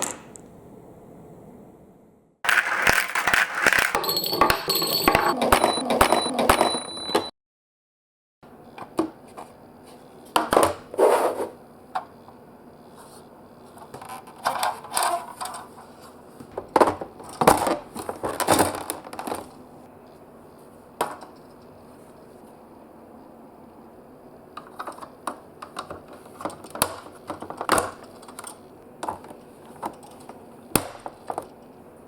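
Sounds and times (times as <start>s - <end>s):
marbles clacking in marble run: 2.5s - 7.0s.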